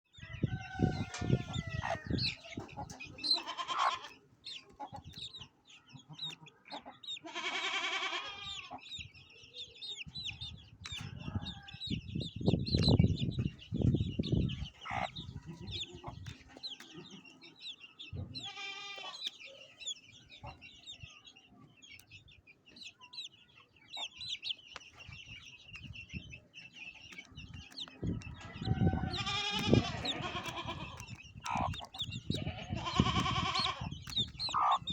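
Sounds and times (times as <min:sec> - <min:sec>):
chickens clucking: 0:00.2 - 0:34.9
high-pitched chirping: 0:27.2 - 0:34.9.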